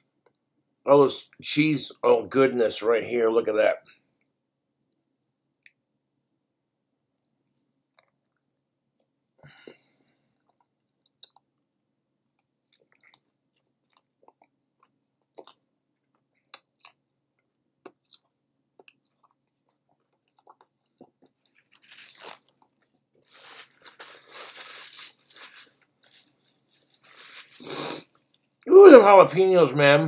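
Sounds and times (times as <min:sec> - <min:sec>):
person chewing food: 0:07.0 - 0:28.7
wet mouth clicks and smacks: 0:10.5 - 0:11.5, 0:15.2 - 0:15.6.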